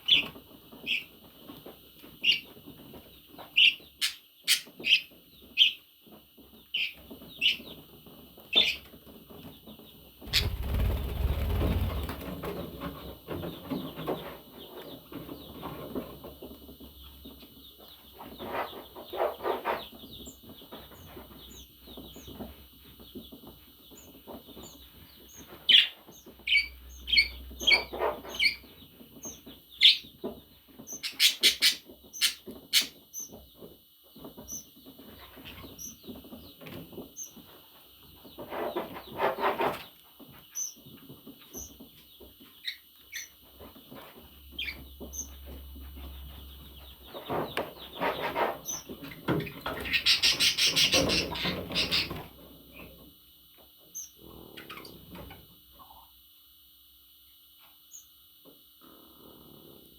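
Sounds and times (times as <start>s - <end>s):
budgerigar chirping: 3.6s - 5.8s, 25.7s - 30.1s, 30.9s - 33.3s, 49.8s - 52.1s.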